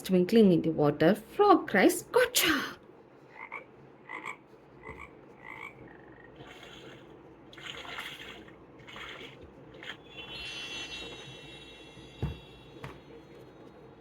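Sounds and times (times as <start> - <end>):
frog croaking from small speaker: 3.3 - 7.1
water splashing: 6.4 - 10.2.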